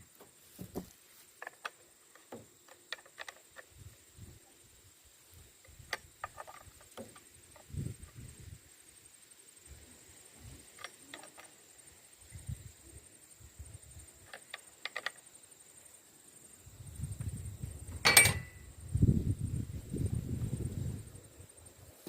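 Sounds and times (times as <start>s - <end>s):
faint high whine: 15.8s - 22.0s
sharp ringing metal clank: 18.0s - 18.7s.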